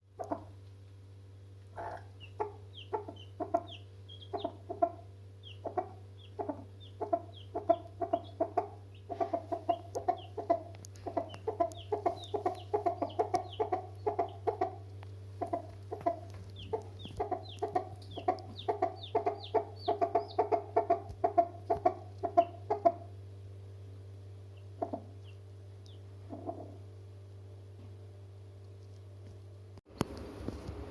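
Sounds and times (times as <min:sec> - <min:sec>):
steady low hum: 0:00.0 - 0:30.9
chickens clucking: 0:00.1 - 0:00.7, 0:01.7 - 0:23.2, 0:24.5 - 0:26.9.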